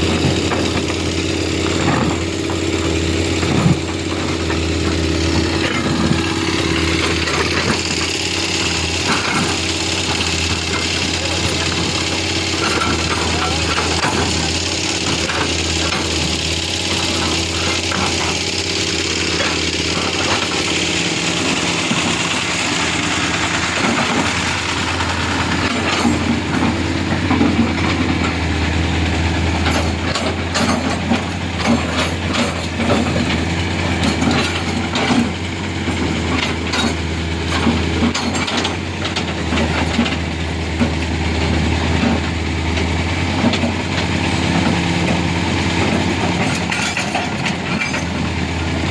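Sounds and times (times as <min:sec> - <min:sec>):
diesel engine humming: 0:00.0 - 0:48.9
metallic knocks and clanks: 0:00.1 - 0:41.0, 0:42.0 - 0:48.6.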